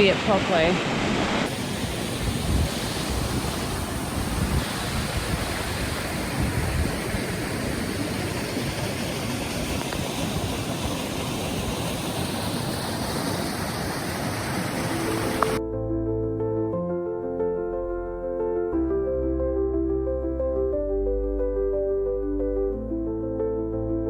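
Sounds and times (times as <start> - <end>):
waterfall rushing: 0.0 - 15.6.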